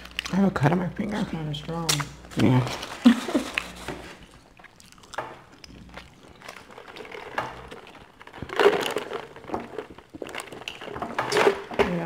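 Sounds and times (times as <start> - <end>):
chewing and crunching fried food: 0.0 - 12.0
small clicks and crinkles: 1.9 - 12.0.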